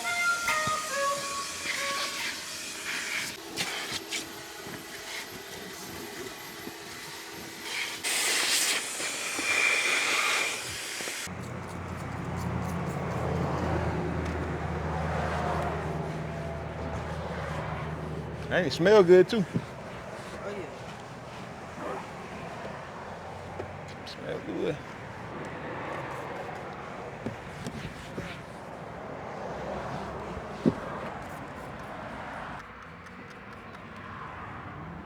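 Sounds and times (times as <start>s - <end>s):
spray hissing: 7.6s - 11.3s
low engine hum: 11.3s - 33.0s.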